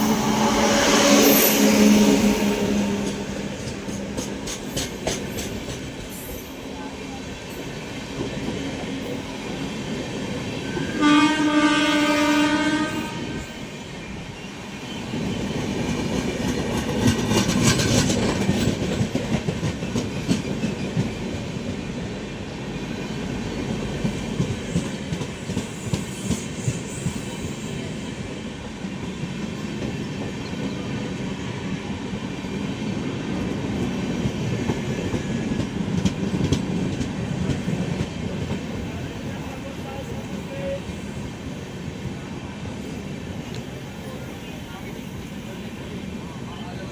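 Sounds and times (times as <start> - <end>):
train horn blast: 0.0 - 3.3, 10.8 - 13.7
train passing with wheel clatter: 0.0 - 46.9.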